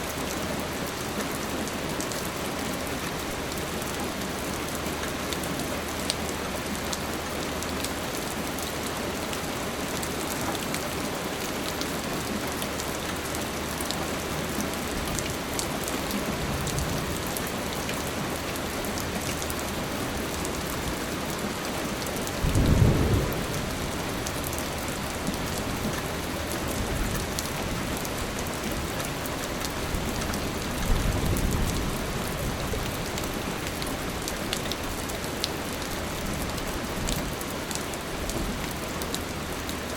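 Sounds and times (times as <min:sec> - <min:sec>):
steady rain falling: 0:00.0 - 0:39.9
thunder rumbling: 0:22.4 - 0:25.3.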